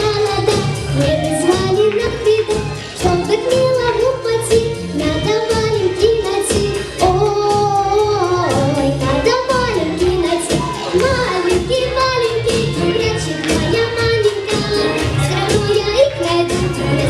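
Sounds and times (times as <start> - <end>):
backing track with regular beat: 0.0 - 17.0
girl singing: 0.0 - 17.0.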